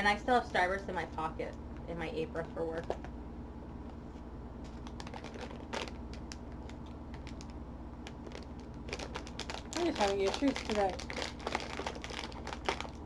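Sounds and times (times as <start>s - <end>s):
steady low hum: 0.0s - 13.0s
plastic package clicks and taps: 4.7s - 13.0s.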